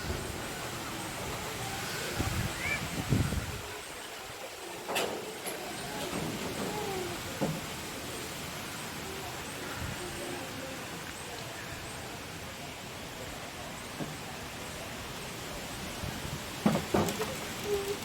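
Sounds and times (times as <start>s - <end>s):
strong wind blowing: 0.0s - 4.0s.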